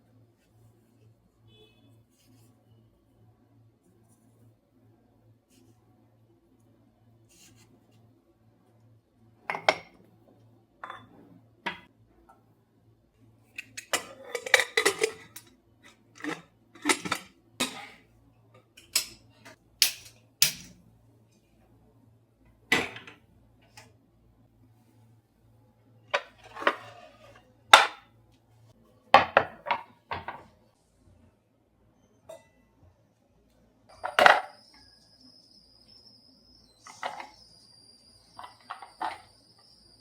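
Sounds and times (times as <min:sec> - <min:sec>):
dishes and utensils clattering: 0:09.5 - 0:10.0, 0:13.6 - 0:15.5, 0:16.2 - 0:18.0, 0:18.8 - 0:19.2, 0:26.2 - 0:28.0.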